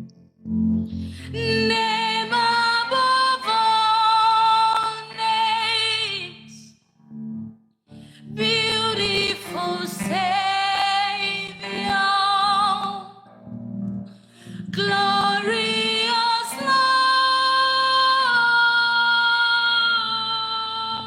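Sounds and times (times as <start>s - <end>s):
low steady accompaniment: 0.0s - 6.3s
woman singing slow worship song: 0.9s - 6.7s, 8.2s - 13.3s, 14.4s - 21.0s.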